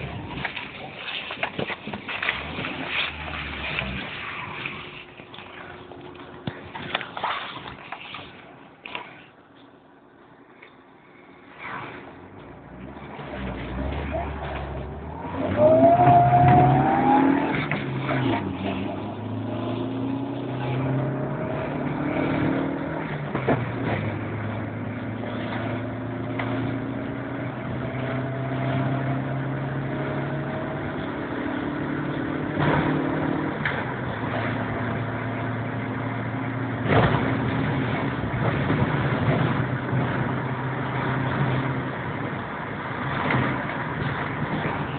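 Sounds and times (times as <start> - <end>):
car engine under load: 0.0 - 44.9
supercharger whine: 10.3 - 44.9.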